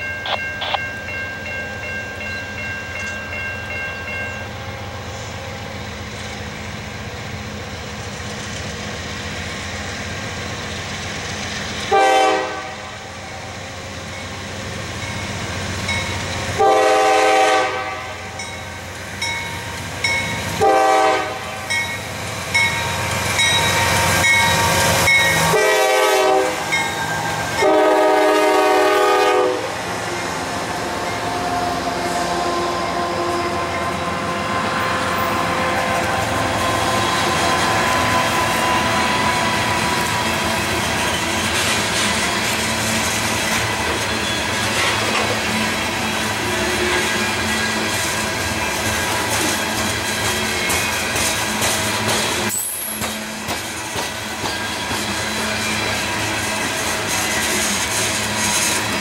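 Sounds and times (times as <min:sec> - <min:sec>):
train air horn blasts: 0:11.9 - 0:13.1, 0:16.6 - 0:18.4, 0:20.6 - 0:21.7, 0:25.4 - 0:26.8, 0:27.5 - 0:29.8, 0:31.4 - 0:39.4.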